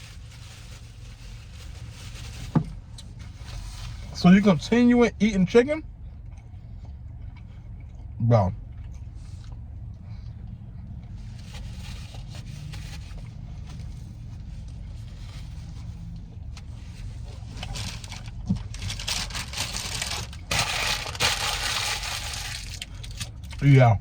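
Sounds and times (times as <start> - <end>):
wrap rustling and scraping: 0.0 - 4.7, 11.2 - 23.2
steady low hum: 0.0 - 24.0.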